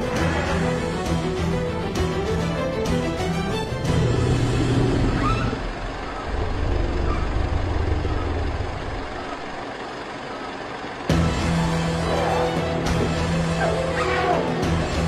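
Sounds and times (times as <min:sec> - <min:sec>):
music: 0:00.0 - 0:05.6, 0:11.1 - 0:15.0
road vehicles idling rumble: 0:02.8 - 0:13.8.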